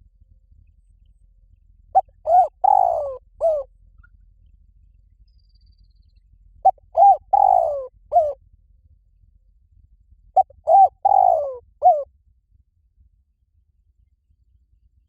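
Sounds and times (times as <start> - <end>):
dove cooing: 2.0 - 3.7, 6.6 - 8.4, 10.4 - 12.0.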